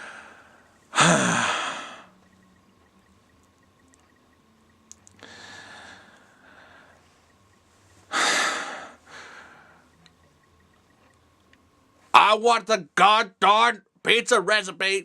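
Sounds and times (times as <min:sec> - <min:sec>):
man breathing out hard: 0:00.0 - 0:02.1, 0:05.2 - 0:07.0, 0:08.1 - 0:09.8.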